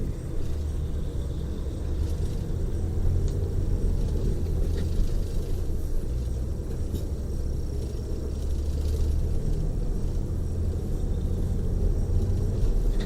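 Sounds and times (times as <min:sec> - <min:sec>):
engine and road rumble: 0:00.0 - 0:13.0
faint light ticks: 0:03.2 - 0:03.5.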